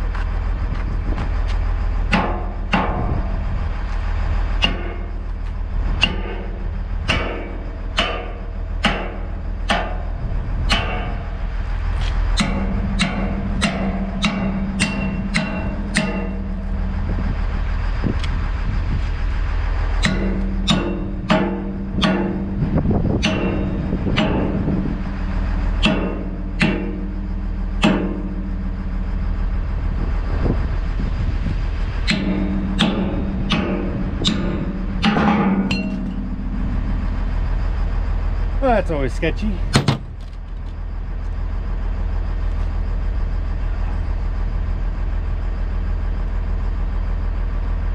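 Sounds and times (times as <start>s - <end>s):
diesel engine running: 0.0s - 47.9s
hammer striking steel pin: 4.6s - 5.2s, 6.0s - 10.1s, 12.4s - 16.6s, 20.0s - 22.6s, 23.2s - 24.6s, 25.8s - 27.2s, 27.8s - 28.4s, 32.0s - 36.8s.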